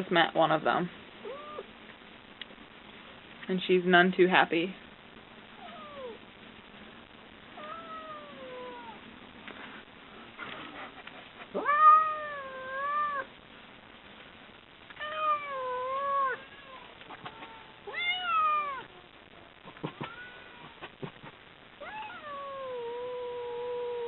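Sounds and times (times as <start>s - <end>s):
cats yowling: 5.6s - 6.2s, 7.6s - 9.0s, 11.6s - 13.3s, 15.0s - 19.1s, 19.7s - 20.9s, 21.8s - 24.0s.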